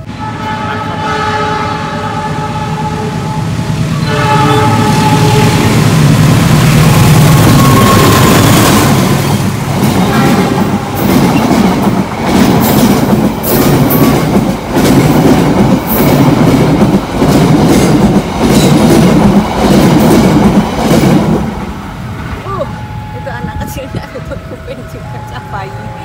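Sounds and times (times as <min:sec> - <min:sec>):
locomotive passing: 0:00.0 - 0:26.0
wheels clickety-clack over rail joints: 0:07.4 - 0:22.4.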